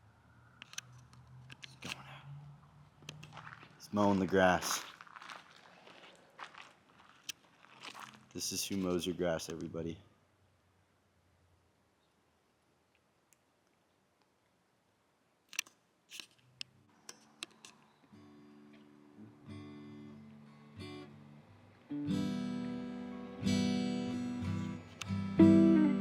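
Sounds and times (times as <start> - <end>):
sharp clicks: 0.6 - 2.0, 15.5 - 17.9
acoustic guitar music: 18.1 - 26.0.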